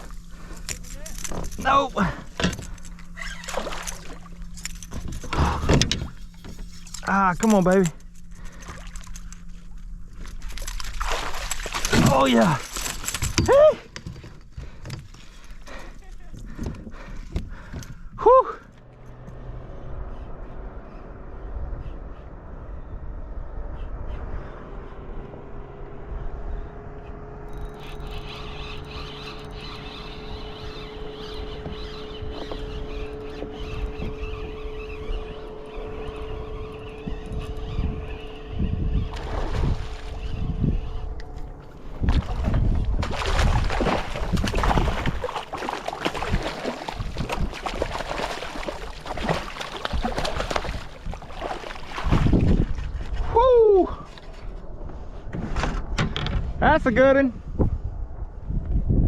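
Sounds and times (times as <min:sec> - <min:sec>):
water splashing and sloshing: 0:00.0 - 0:18.2, 0:38.9 - 0:53.4
distant engine drone: 0:00.0 - 0:59.0
low rumble: 0:16.4 - 0:27.7, 0:33.7 - 0:56.6, 0:57.3 - 0:59.0
wind buffeting microphone: 0:28.1 - 0:59.0.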